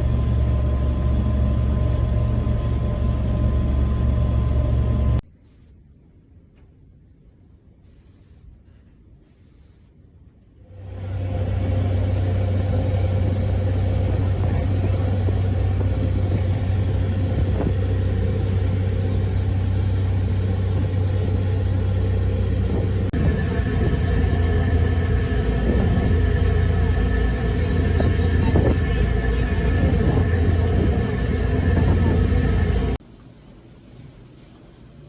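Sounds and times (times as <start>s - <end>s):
vehicle engine rumbling: 0.0s - 5.2s, 6.7s - 33.0s.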